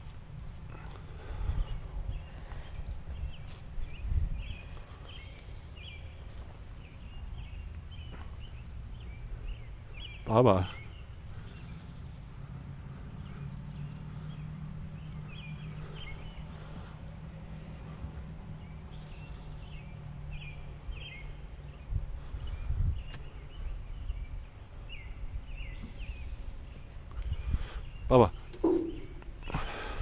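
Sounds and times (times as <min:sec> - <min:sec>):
small birds chirping: 0:00.0 - 0:30.0
steady low hum: 0:00.0 - 0:30.0
low knocks: 0:28.6 - 0:29.4.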